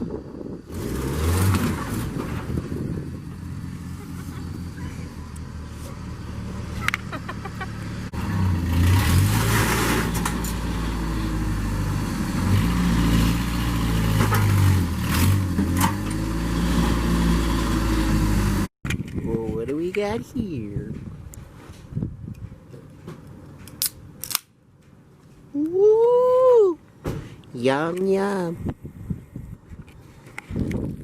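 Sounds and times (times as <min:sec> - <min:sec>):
vehicle engine droning: 0:00.0 - 0:18.7.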